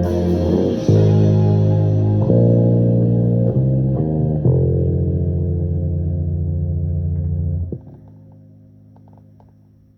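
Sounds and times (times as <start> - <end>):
electric bass sustained note: 0.0 - 7.7
faint amplifier hum: 0.0 - 9.9.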